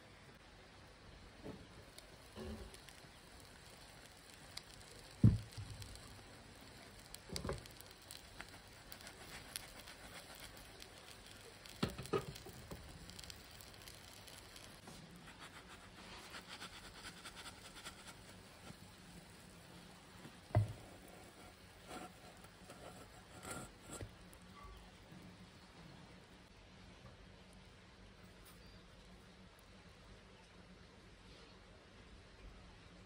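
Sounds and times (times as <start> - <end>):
omelet sizzling in a pan: 0.1 - 24.9.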